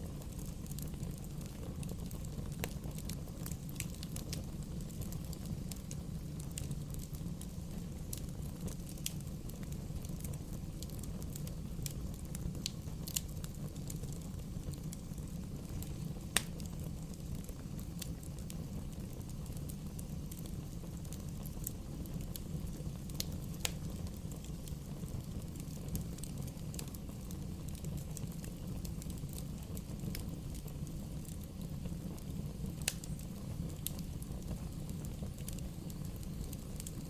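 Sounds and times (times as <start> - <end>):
bonfire crackling and popping: 0.0 - 37.0
low rumble of flames: 0.0 - 37.0.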